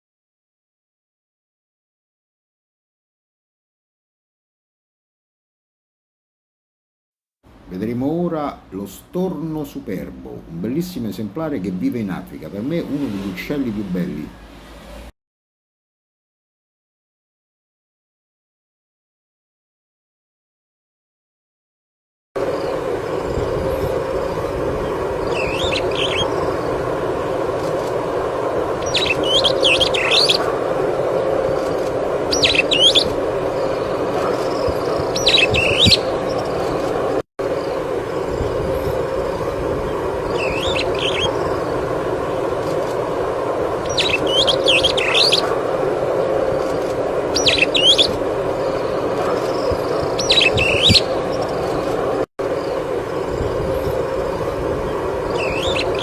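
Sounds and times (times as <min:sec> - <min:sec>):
low background hum: 0:07.5 - 0:15.1, 0:22.4 - 0:56.0
starling chirping: 0:22.5 - 0:28.0, 0:28.6 - 0:30.6, 0:31.2 - 0:56.0.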